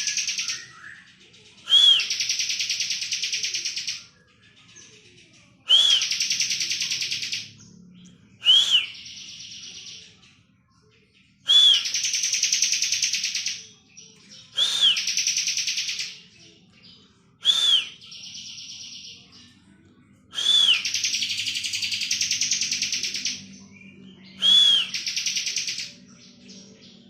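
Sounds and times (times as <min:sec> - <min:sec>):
bird whistle and buzzing trill: 0:01.7 - 0:02.3, 0:05.7 - 0:06.4, 0:08.4 - 0:09.3, 0:11.5 - 0:12.2, 0:14.5 - 0:15.4, 0:17.4 - 0:18.1, 0:20.4 - 0:23.0, 0:24.3 - 0:25.8.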